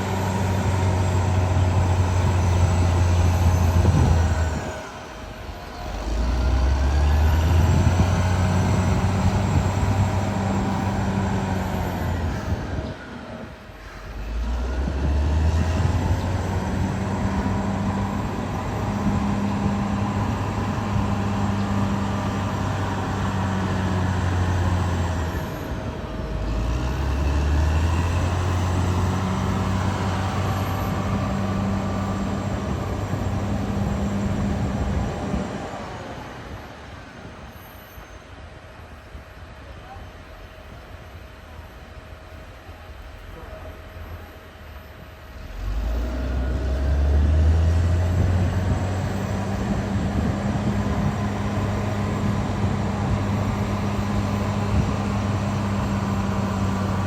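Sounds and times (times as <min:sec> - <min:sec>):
bulldozer diesel engine under load: 0:00.0 - 0:38.0, 0:42.1 - 0:57.0.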